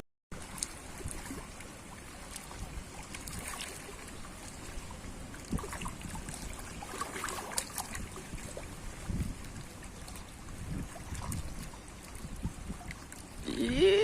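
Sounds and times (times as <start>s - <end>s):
sea water lapping: 0.3s - 14.0s
wind on microphone: 4.2s - 14.0s.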